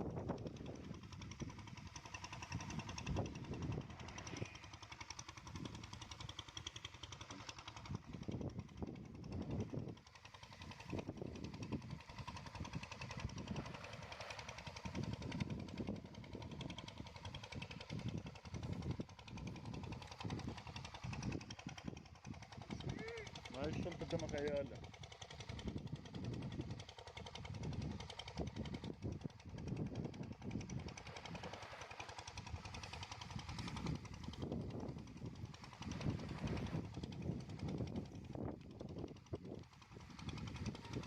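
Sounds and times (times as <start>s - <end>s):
small engine knocking: 0.0s - 41.0s.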